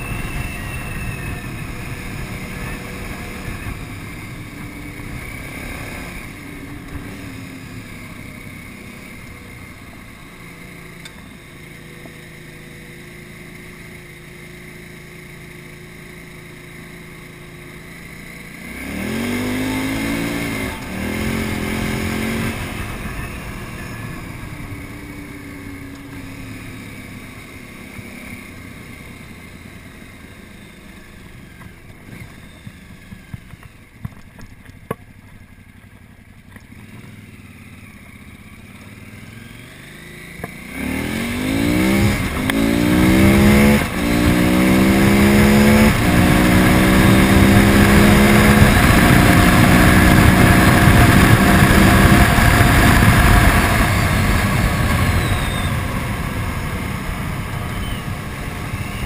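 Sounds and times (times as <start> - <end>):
motorcycle engine accelerating: 0.0 - 59.0
wind noise: 41.1 - 59.0.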